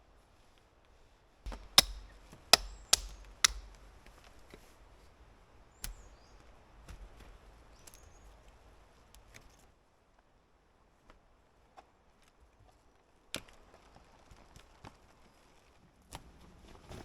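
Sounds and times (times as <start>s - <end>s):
light knocks: 1.5s - 3.9s
hatchet chopping wood: 1.5s - 4.1s.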